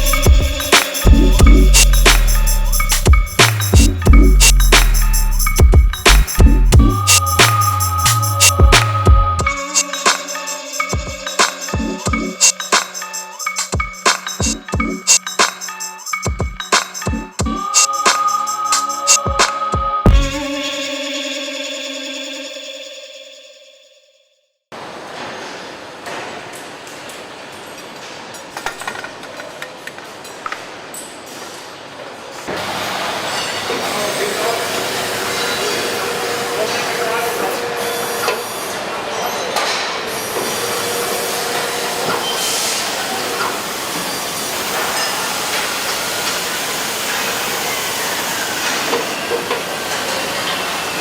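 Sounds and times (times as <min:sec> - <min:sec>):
hissing factory machinery: 0:00.0 - 0:06.4, 0:32.4 - 0:51.0
steady mechanical din: 0:00.0 - 0:09.6, 0:20.1 - 0:20.7.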